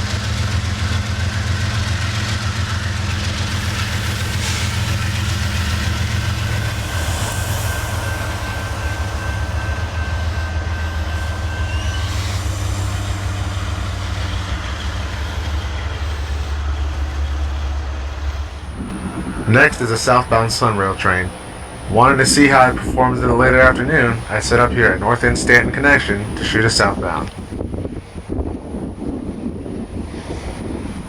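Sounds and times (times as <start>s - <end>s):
diesel locomotive low drone: 0.0s - 31.0s
thin steady whine: 18.6s - 27.6s.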